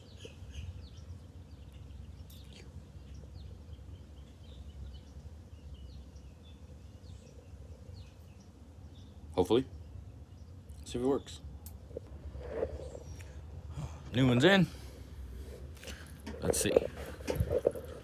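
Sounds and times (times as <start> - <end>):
bird chirps: 0.0 - 11.6.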